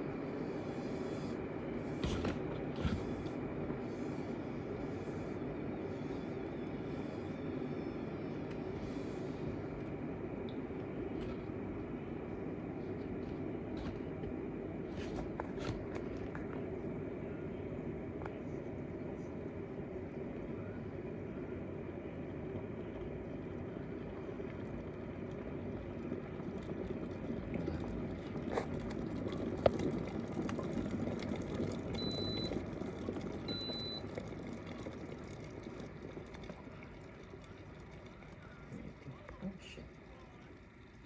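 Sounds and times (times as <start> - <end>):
kettle boiling rumble: 0.0 - 41.0.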